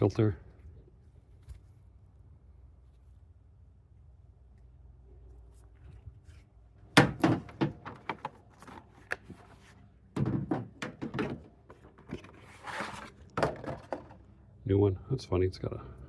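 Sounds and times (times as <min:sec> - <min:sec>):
air filters knocking on plastic: 0:07.0 - 0:08.4.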